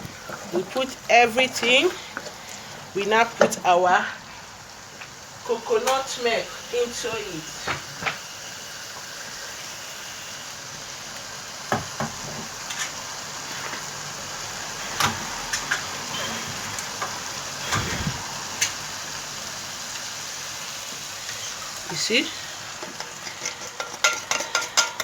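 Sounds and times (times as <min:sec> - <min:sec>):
sauce sizzling in a saucepan: 0:00.0 - 0:25.0
utensil knocking against pan: 0:22.8 - 0:25.0.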